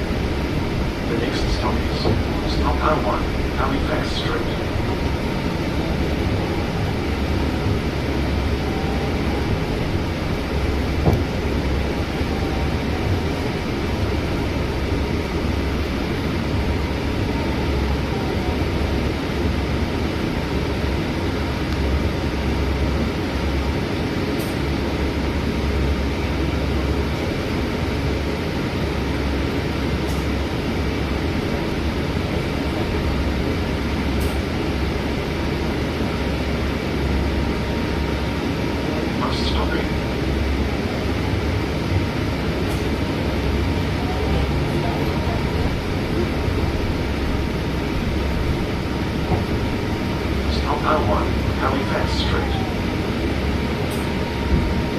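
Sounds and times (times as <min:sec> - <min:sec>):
bus engine rumble: 0:00.0 - 0:54.9
faint steady whine: 0:00.0 - 0:54.9
road and tyre noise: 0:28.9 - 0:54.9.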